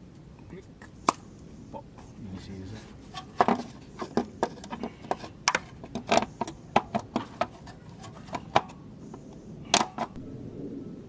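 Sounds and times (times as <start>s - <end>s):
hand tools clicking and knocking: 3.1s - 8.8s.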